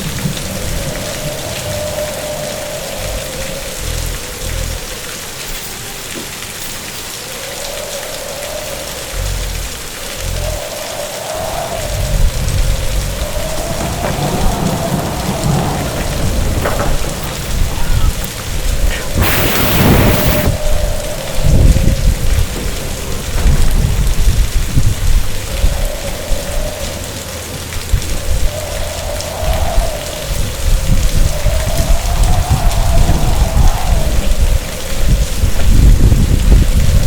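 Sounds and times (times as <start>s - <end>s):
rumbling thunder: 0.0s - 4.9s, 8.7s - 37.0s
heavy rain: 0.0s - 37.0s
loud thunderclap: 11.4s - 26.4s, 27.8s - 37.0s.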